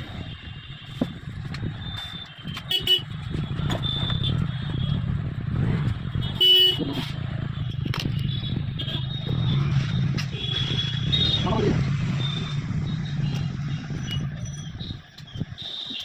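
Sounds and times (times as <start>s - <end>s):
road traffic: 0.0s - 16.0s
vehicle horns tooting: 2.0s - 5.0s, 6.1s - 12.4s.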